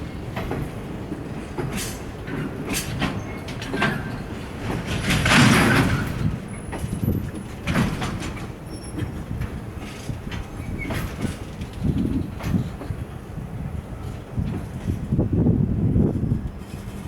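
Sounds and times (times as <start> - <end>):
freight train rolling: 0.0 - 17.0
wheels knocking over rail joints: 1.3 - 12.9.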